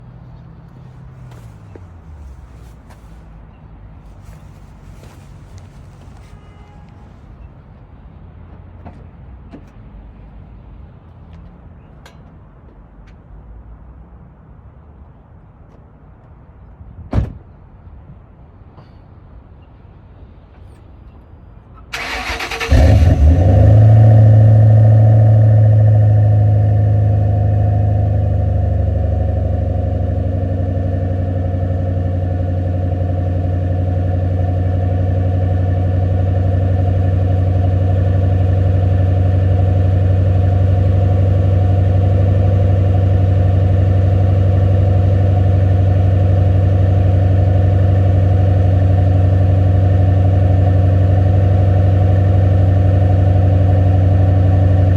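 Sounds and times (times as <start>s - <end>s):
car engine revving and idling: 22.0s - 54.9s.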